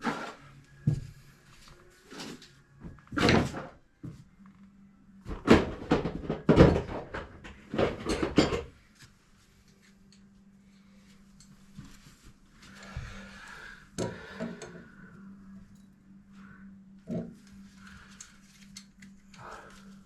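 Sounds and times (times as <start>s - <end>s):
tools knocking and scraping: 5.3s - 8.7s
faint steady hum: 7.5s - 20.0s.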